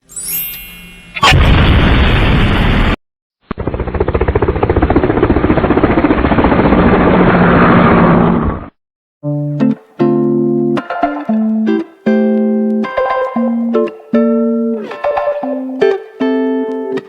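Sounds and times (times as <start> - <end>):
mechanical rushing noise: 2.2 - 8.7.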